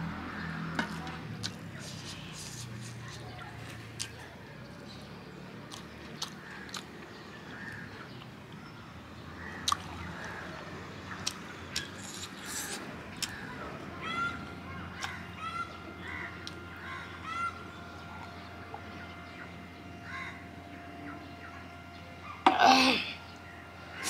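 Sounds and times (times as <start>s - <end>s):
birds calling: 0.0s - 24.0s.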